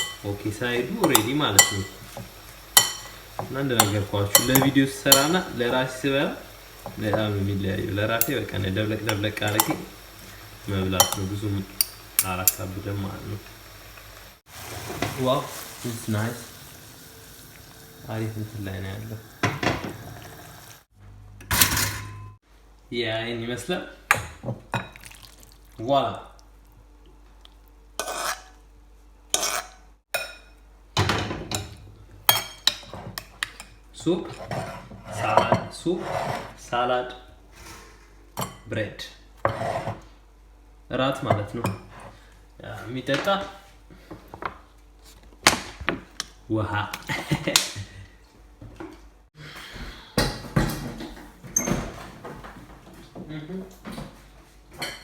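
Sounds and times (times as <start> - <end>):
dishes and cutlery clattering: 1.0 - 5.6.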